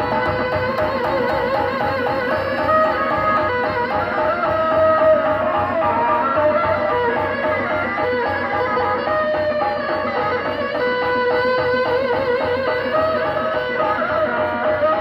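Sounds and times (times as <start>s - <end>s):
fast wind instrument melody: 0.0s - 15.0s
steady drumming: 0.0s - 15.0s.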